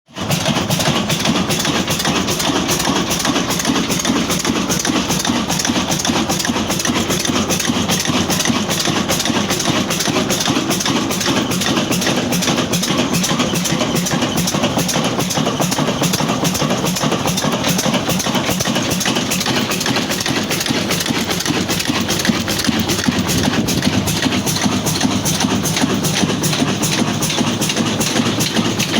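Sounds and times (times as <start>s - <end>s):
diesel engine running: 0.2s - 28.9s.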